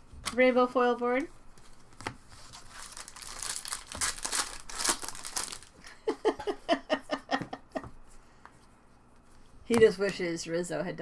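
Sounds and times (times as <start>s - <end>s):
wrapper crinkling: 2.4s - 5.9s.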